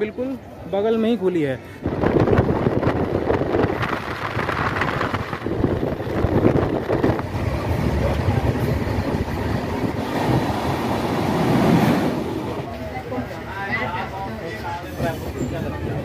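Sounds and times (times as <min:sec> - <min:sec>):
wind buffeting microphone: 0:01.8 - 0:11.9
train wheels rumbling on rails: 0:01.8 - 0:16.0.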